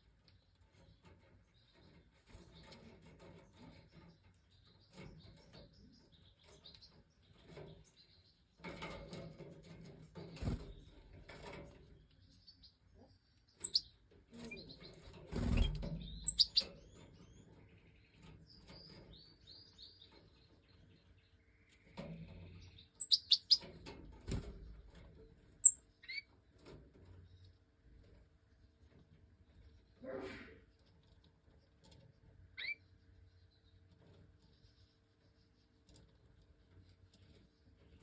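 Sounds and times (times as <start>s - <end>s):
rustling and wing flutter: 8.6s - 12.1s, 13.6s - 17.5s
birds chirping: 10.0s - 38.0s.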